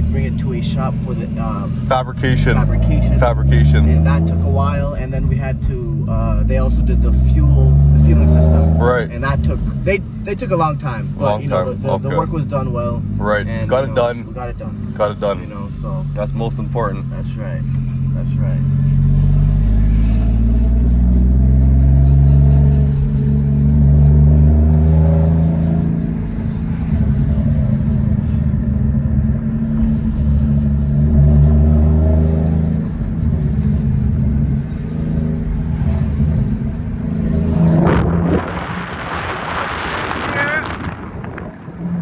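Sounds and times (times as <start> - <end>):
car engine revving: 0.0 - 42.0
rising rush of noise: 37.1 - 42.0.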